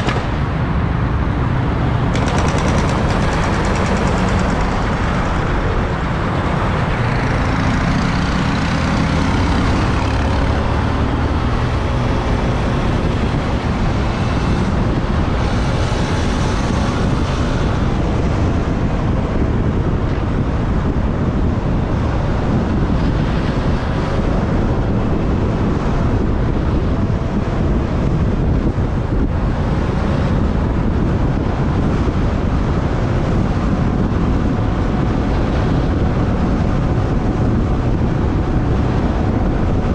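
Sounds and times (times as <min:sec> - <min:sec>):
road noise rushing: 0:00.0 - 0:39.9
motorbike engine: 0:01.9 - 0:10.8.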